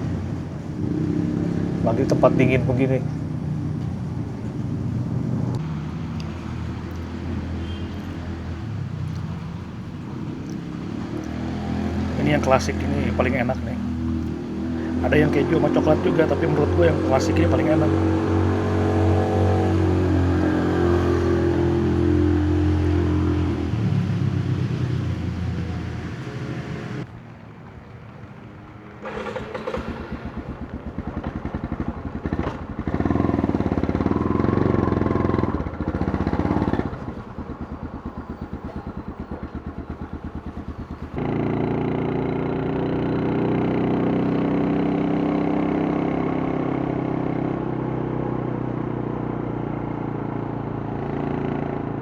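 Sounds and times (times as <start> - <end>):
motorcycle engine running and idling: 0.0 - 52.0.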